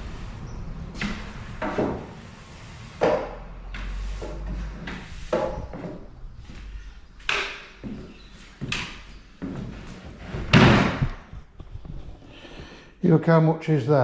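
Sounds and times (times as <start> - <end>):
broom sweeping concrete floor: 0.0 - 6.8.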